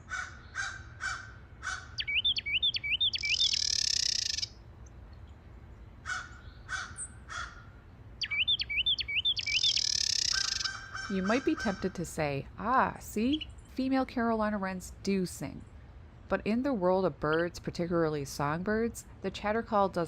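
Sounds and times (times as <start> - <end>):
crows cawing: 0.0 - 2.3, 6.0 - 7.8, 9.1 - 11.9
wren harsh chatter call: 0.0 - 4.6, 6.0 - 12.2
wren whistled song: 2.0 - 4.5, 8.2 - 11.1.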